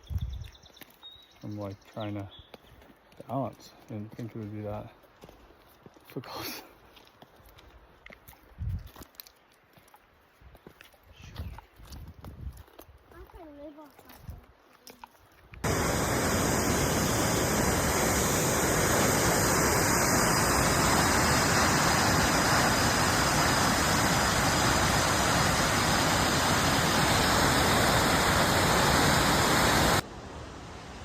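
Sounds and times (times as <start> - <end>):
waterfall rushing: 15.6 - 31.0.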